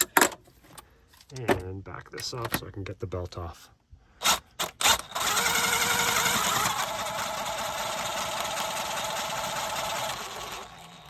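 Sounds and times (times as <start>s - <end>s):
power tool motor running: 4.2s - 11.0s.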